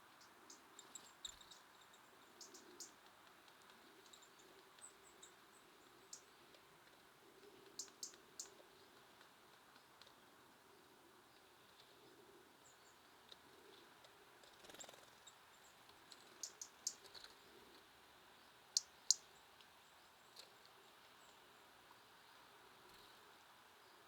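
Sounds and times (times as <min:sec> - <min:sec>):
songbirds calling: 0:00.0 - 0:03.1, 0:03.7 - 0:06.6, 0:07.2 - 0:09.0, 0:14.6 - 0:21.7.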